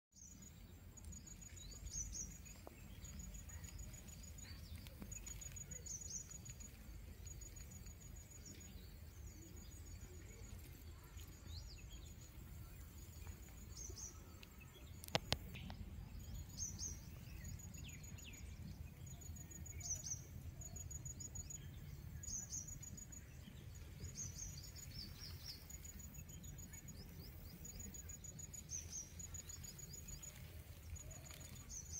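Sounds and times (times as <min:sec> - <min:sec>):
sharp clicks: 0:15.0 - 0:15.8.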